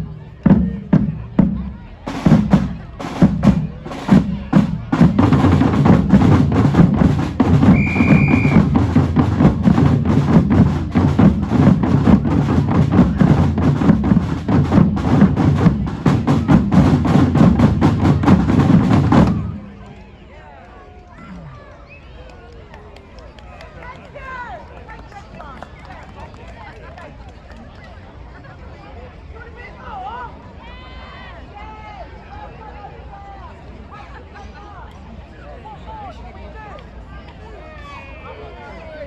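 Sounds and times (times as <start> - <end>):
drum band playing: 0.0 - 19.9.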